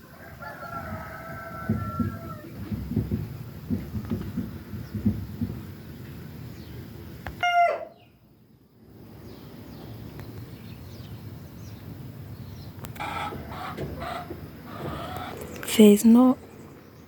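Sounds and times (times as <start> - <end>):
outdoor background noise: 0.0 - 17.0
chicken calling: 7.4 - 8.1, 13.0 - 15.6.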